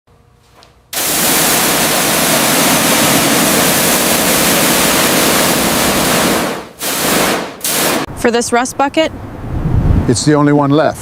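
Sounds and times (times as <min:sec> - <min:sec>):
loud rushing hiss: 0:01.0 - 0:08.2.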